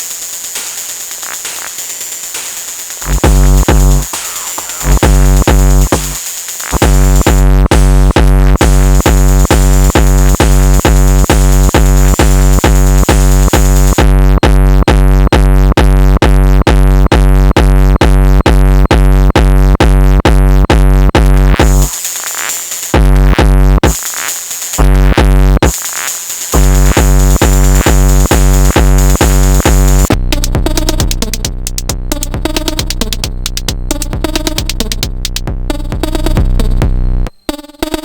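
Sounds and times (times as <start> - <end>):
hissing cymbal: 0.0 - 7.2
drum machine kick drum: 0.0 - 38.0
sustained bass tone: 3.0 - 4.1, 4.8 - 21.9, 23.0 - 23.9, 24.8 - 25.7, 26.6 - 37.8.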